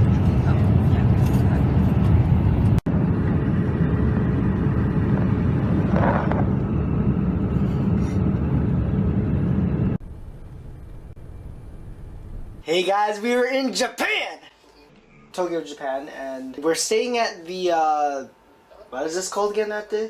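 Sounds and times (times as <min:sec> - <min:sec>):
airliner cabin roar: 0:00.0 - 0:12.6.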